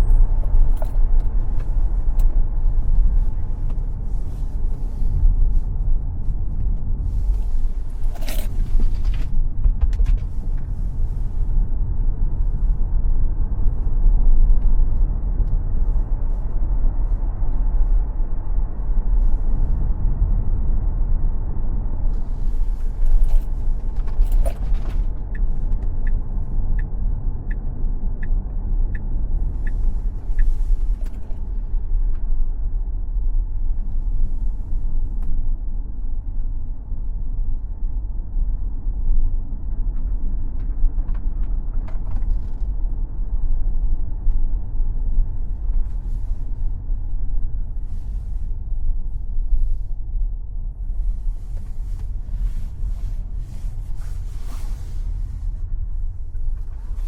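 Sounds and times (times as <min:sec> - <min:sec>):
tyre and road rumble: 0:00.0 - 0:36.4.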